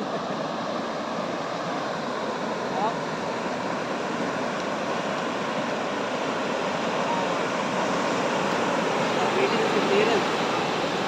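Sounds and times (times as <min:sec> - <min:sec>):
ocean surf on a beach: 0:00.0 - 0:11.0.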